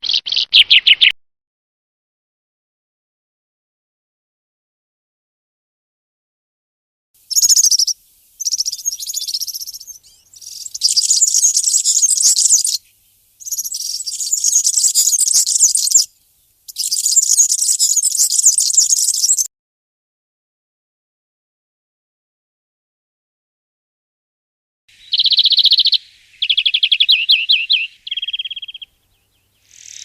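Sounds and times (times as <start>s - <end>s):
songbird twittering: 0.0s - 1.2s, 7.3s - 19.5s, 24.9s - 30.0s.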